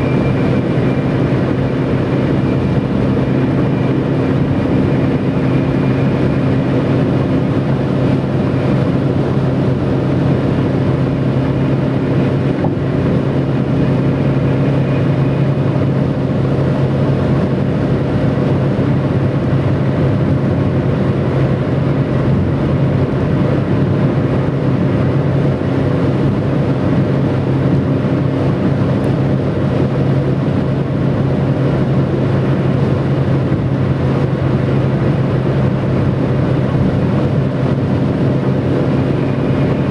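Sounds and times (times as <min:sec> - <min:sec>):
tyres whistling on road: 0:00.0 - 0:07.5
road noise: 0:00.0 - 0:39.9.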